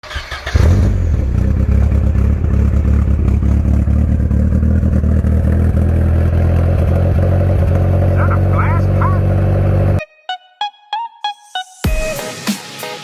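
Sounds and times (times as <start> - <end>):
car engine running: 0.1 - 10.0.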